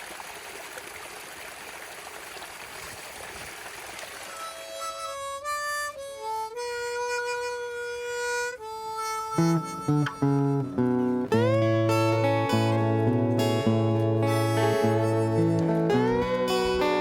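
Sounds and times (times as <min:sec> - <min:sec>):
stream water running: 0:00.0 - 0:05.4
harmonica slow melody: 0:04.3 - 0:17.0
plucked guitar: 0:04.4 - 0:17.0.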